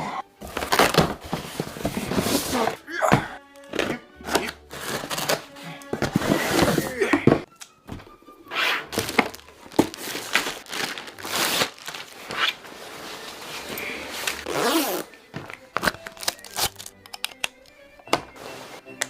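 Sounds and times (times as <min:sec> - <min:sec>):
packaging rustling and crinkling: 0:00.4 - 0:02.8, 0:04.7 - 0:06.9, 0:08.9 - 0:17.0
sharp clicks: 0:17.0 - 0:17.7.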